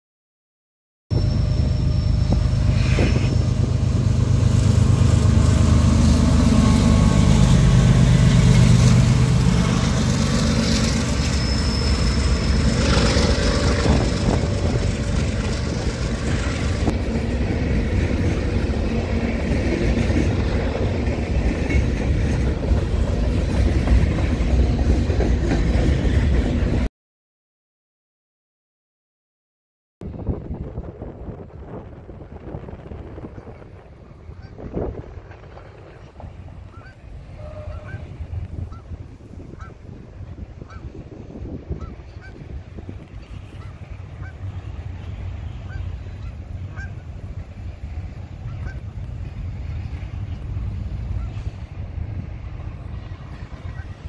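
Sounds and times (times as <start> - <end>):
brief high squeal: 1.1 - 3.6, 10.7 - 14.0
diesel locomotive engines rumbling: 1.1 - 26.9, 30.0 - 54.0
train wheels clattering on rail: 2.8 - 26.9.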